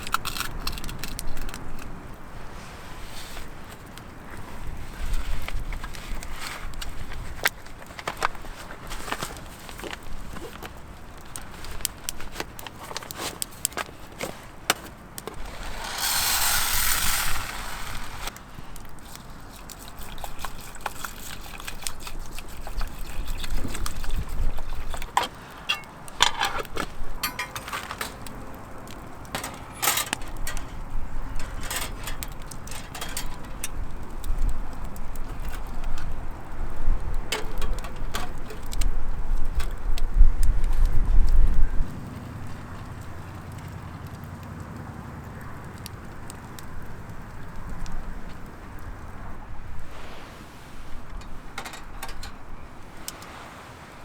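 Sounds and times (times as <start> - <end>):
wind rumble on microphone: 0.0 - 10.7, 22.0 - 25.2, 30.2 - 53.0
gear rustling: 11.5 - 33.8
clicks and knocks: 25.2 - 28.4.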